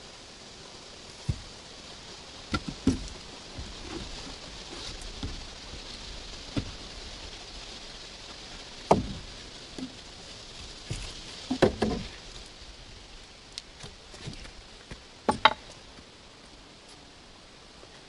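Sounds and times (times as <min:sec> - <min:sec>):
sharp knocks: 0:02.5 - 0:04.1, 0:08.9 - 0:09.3, 0:11.5 - 0:12.1, 0:15.3 - 0:15.7.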